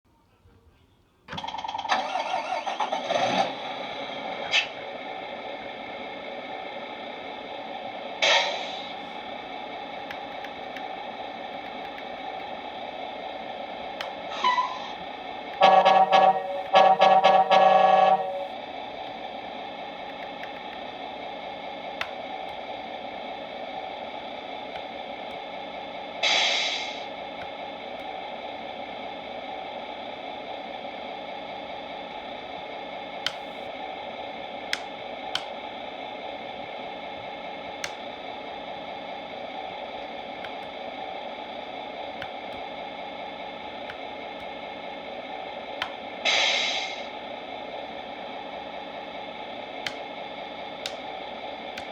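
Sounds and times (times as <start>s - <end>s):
diesel engine idling through speaker: 13.2s - 21.9s
air hisses: 26.2s - 27.1s, 46.2s - 47.1s
sharp clicks: 33.2s - 33.6s, 34.6s - 35.6s, 49.8s - 50.2s, 50.8s - 51.1s.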